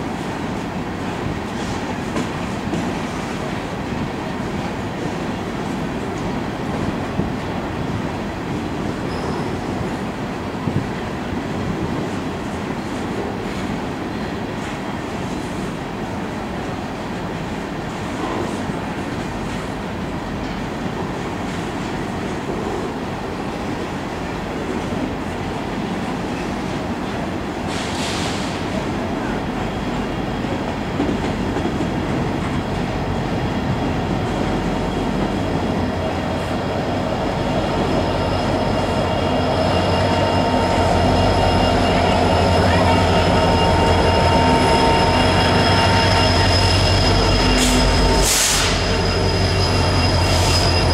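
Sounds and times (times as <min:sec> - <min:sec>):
diesel locomotive engine drone: 0:00.0 - 0:50.9
rail cars rolling: 0:00.0 - 0:50.9
wheel squeal: 0:09.0 - 0:09.8, 0:36.6 - 0:50.9.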